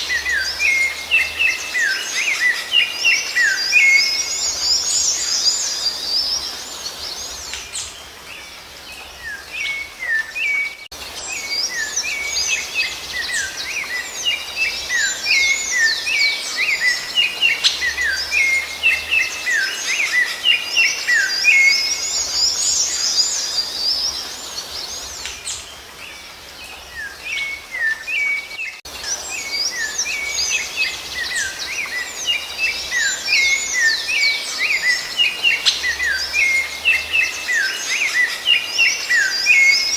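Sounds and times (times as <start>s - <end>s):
songbird chorus chirping: 0.0s - 39.9s.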